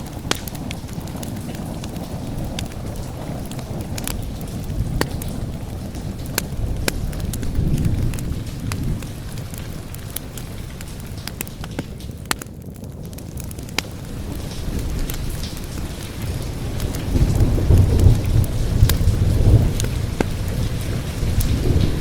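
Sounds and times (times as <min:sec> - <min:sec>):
rumble of thunder: 0:00.0 - 0:22.0
wood fire crackling: 0:00.0 - 0:22.0.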